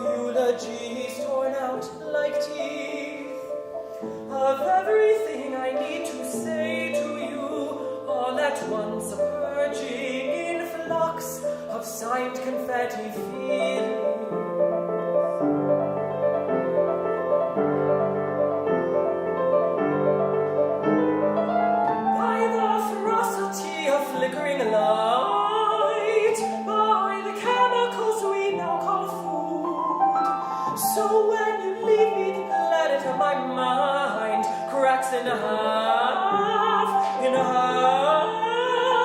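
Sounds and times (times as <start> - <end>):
piano playing chords: 0.0 - 39.0
counter-tenor singing with vibrato: 21.0 - 39.0.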